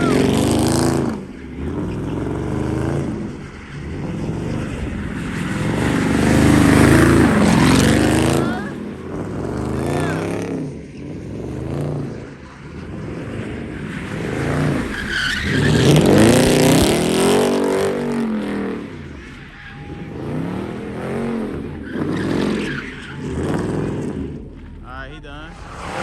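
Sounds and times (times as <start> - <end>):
tyres squealing: 0.0 - 9.0, 13.8 - 24.0
car engine revving: 0.0 - 26.0.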